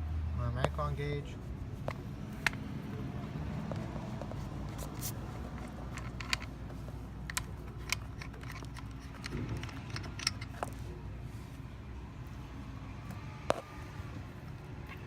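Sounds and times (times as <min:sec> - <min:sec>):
clicks of gauge hose fittings: 0:03.7 - 0:06.5, 0:07.2 - 0:10.8.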